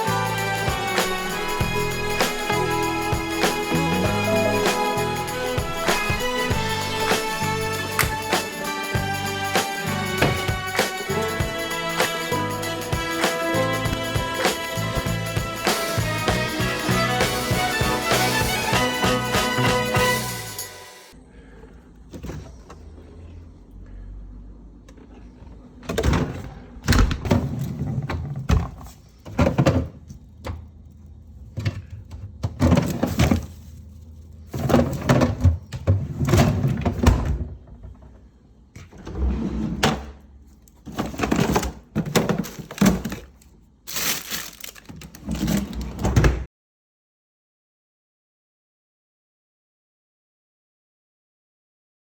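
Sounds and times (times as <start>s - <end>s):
objects knocking and clattering: 31.5s - 33.7s, 34.5s - 38.2s, 40.8s - 45.7s.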